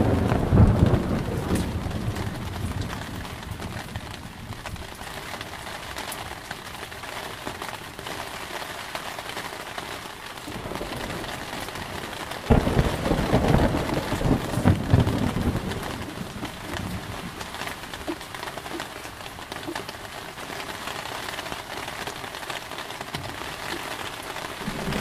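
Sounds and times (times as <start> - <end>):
thunder crack and rumble: 0.0 - 5.6, 10.5 - 17.6, 24.4 - 25.0
heavy rain: 0.0 - 25.0.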